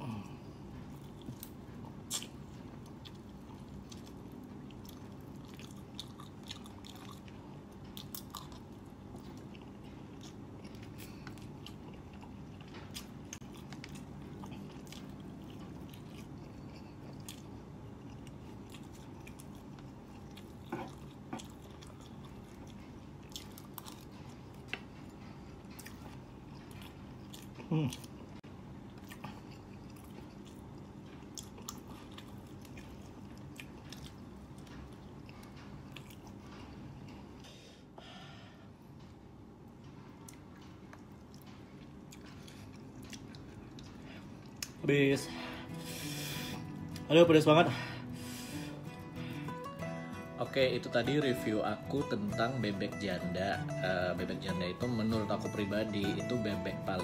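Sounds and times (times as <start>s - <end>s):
steady low hum: 0.0s - 57.0s
person chewing and biting: 0.8s - 37.4s, 40.1s - 44.8s.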